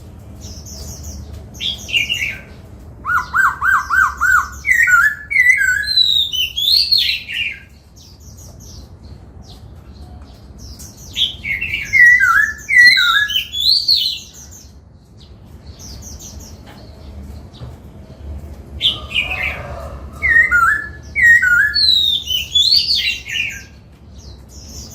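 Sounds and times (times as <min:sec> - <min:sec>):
bird whistling song: 0:01.6 - 0:07.7, 0:11.1 - 0:14.6, 0:18.8 - 0:23.8.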